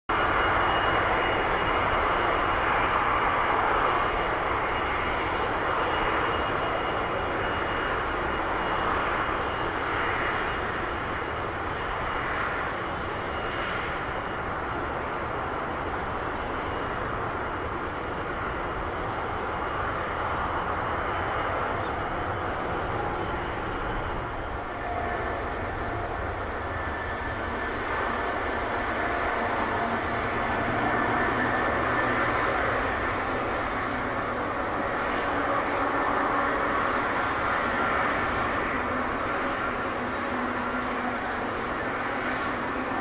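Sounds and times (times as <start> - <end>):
jet engine roar with high whine: 0.1 - 43.0.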